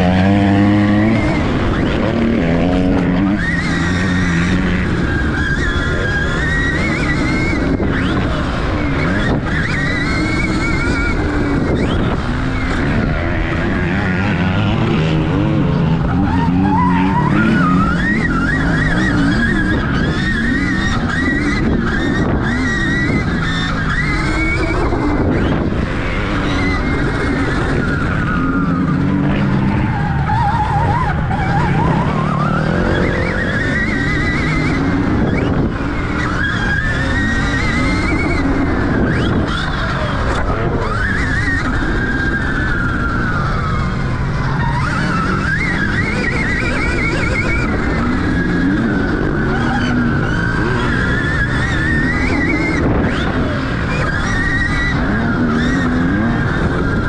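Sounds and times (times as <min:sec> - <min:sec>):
electric motorbike motor whining: 0:00.0 - 0:57.0.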